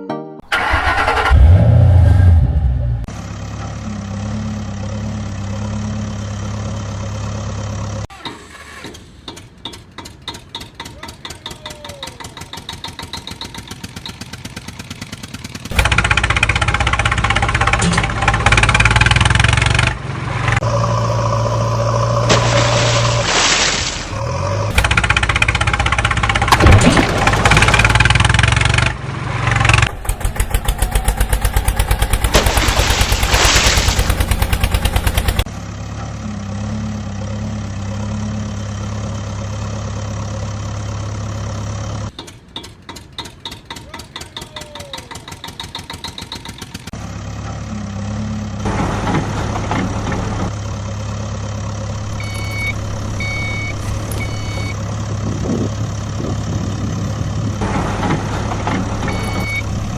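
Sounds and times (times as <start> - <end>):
heavy vehicle engine idling: 9.0 - 19.0, 34.2 - 59.9
reversing beeps: 52.0 - 54.8, 58.9 - 59.9.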